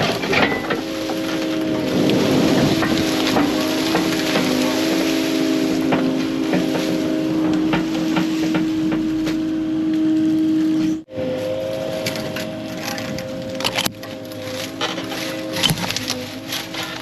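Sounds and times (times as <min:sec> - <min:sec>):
cracks and knocks of brush and rock: 0:00.0 - 0:17.0
diesel engine running: 0:00.0 - 0:17.0
hydraulic whine: 0:00.0 - 0:17.0.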